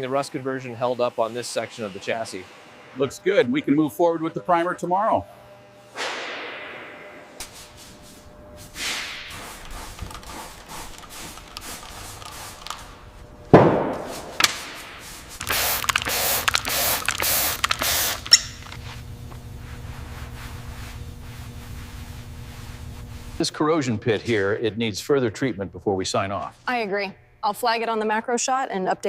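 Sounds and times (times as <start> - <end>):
loud thud: 13.5 - 14.8
pulsing hiss: 15.1 - 18.8.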